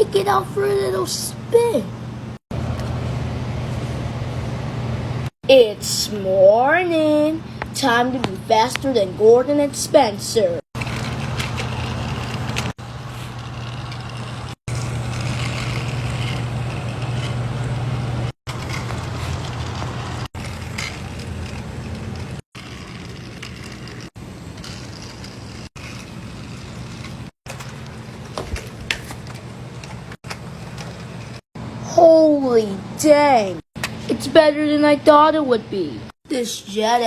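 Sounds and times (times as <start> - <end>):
toy train motor humming: 10.8 - 28.0.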